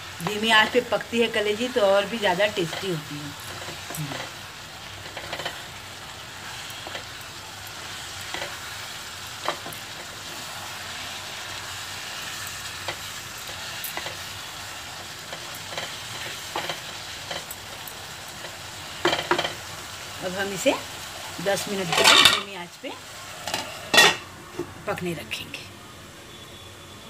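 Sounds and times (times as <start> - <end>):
liver sizzling in pan: 0.0 - 25.0
spatula scraping and tapping pan: 2.6 - 5.8, 6.4 - 10.4, 12.7 - 14.3, 15.0 - 19.7.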